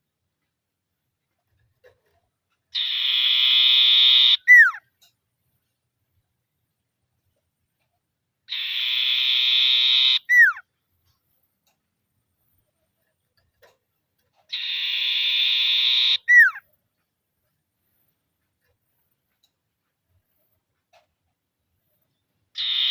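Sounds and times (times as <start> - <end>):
bird buzzy rattling call: 2.7 - 4.8, 14.4 - 16.6.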